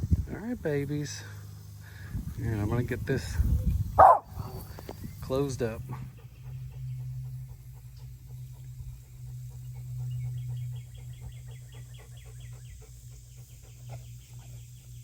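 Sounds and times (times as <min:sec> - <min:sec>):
steady low hum: 0:00.0 - 0:15.0
bird trilling: 0:04.0 - 0:04.4.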